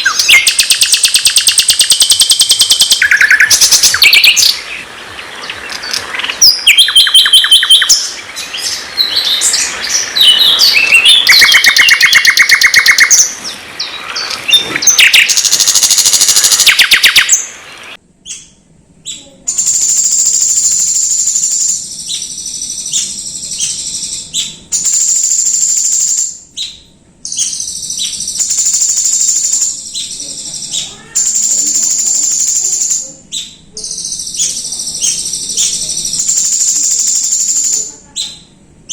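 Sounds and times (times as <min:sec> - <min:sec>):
songbird whistles and trills: 0:00.0 - 0:04.8, 0:05.4 - 0:17.5
high buzzing bird trill: 0:00.0 - 0:17.6, 0:18.2 - 0:38.9.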